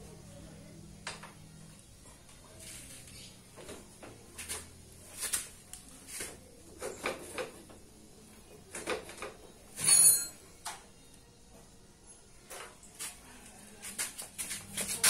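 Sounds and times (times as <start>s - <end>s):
tools knocking and scraping: 8.7s - 10.8s.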